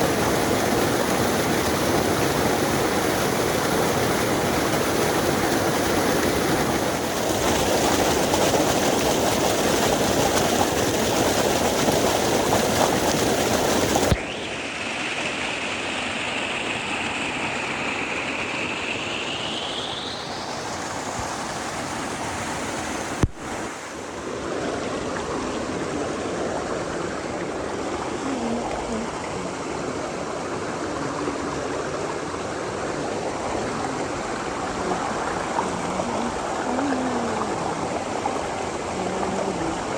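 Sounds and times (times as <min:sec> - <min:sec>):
creek water rushing: 0:00.0 - 0:39.9.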